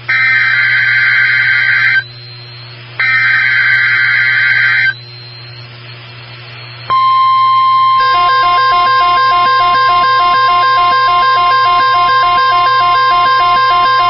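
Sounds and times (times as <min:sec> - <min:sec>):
steady warning alarm tone: 0:00.0 - 0:05.7, 0:06.9 - 0:14.0
screeching digital data bursts: 0:07.9 - 0:14.0.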